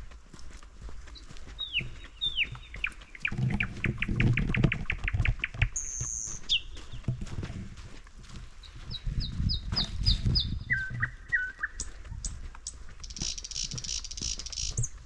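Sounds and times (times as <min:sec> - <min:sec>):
rustling and crunching: 0:00.0 - 0:15.0
songbird whistling calls: 0:01.6 - 0:04.2, 0:05.6 - 0:06.8, 0:08.9 - 0:12.0, 0:12.6 - 0:15.0.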